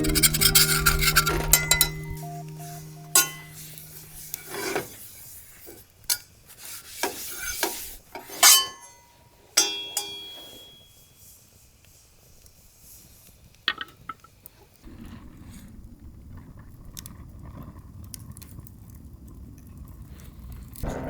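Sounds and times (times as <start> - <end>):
cutlery scraping cookware: 7.5 - 8.9.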